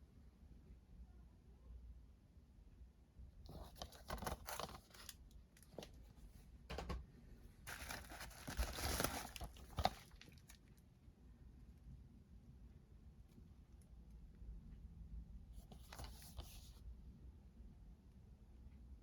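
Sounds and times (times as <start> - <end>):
packaging crinkling: 3.5 - 5.2, 7.7 - 10.6
packaging tearing: 7.7 - 10.6.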